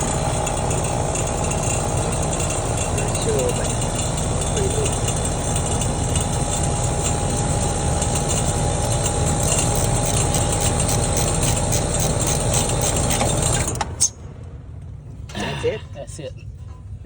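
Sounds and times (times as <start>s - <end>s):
air conditioner unit running: 0.0s - 17.0s.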